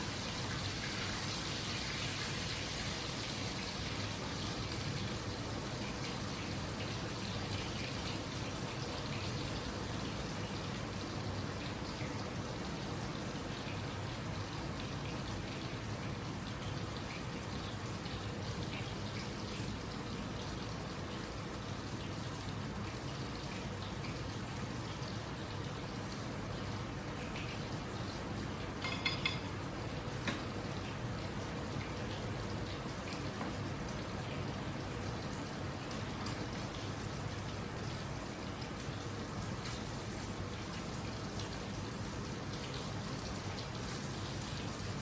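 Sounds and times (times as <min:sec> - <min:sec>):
food sizzling in hot oil: 0:00.0 - 0:11.3, 0:27.6 - 0:30.6
hot oil sizzling in a frying pan: 0:00.0 - 0:45.0.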